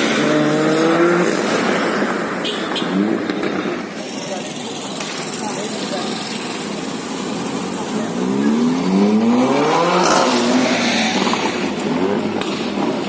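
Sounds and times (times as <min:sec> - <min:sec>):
street traffic noise: 0:00.0 - 0:13.0
car engine accelerating past: 0:08.1 - 0:13.0.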